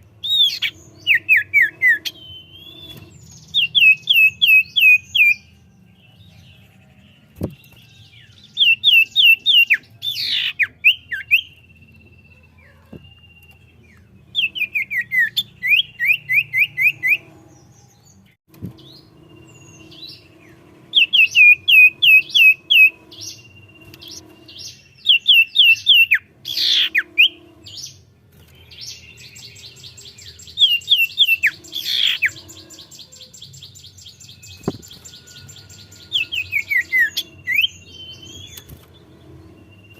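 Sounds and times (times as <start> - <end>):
bird chirping rapidly: 0.0 - 5.6, 7.4 - 17.8, 18.6 - 39.9
high bird trill: 0.0 - 6.7, 8.1 - 17.9, 18.7 - 39.9.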